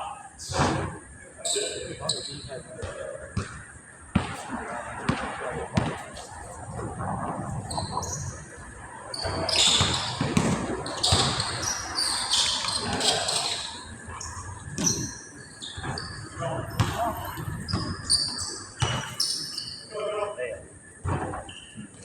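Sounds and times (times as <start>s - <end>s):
players' voices: 0.0s - 22.0s
basketball bouncing on court: 2.8s - 4.4s, 5.1s - 6.0s, 9.1s - 13.7s, 14.7s - 19.4s.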